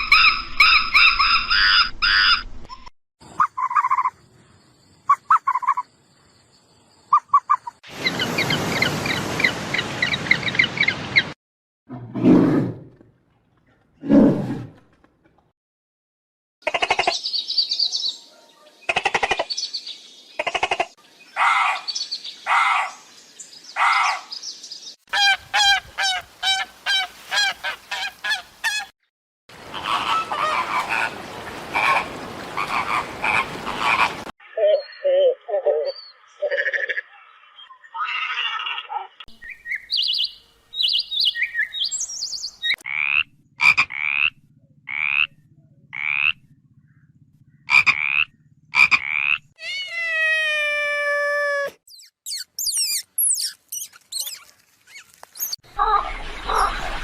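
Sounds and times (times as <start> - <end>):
bird calls and chirps: 0.0 - 11.4, 16.8 - 25.0, 33.8 - 44.3, 51.9 - 57.0.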